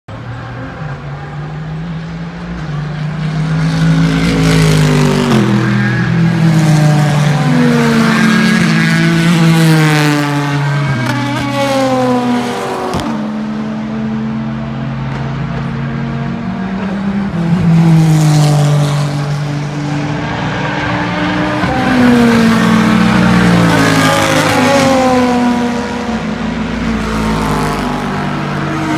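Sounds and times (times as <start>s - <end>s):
race car engines passing by: 0.1s - 28.9s.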